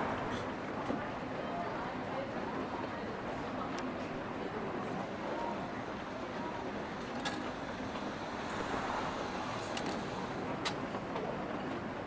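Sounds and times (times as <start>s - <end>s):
rain: 6.4s - 10.6s.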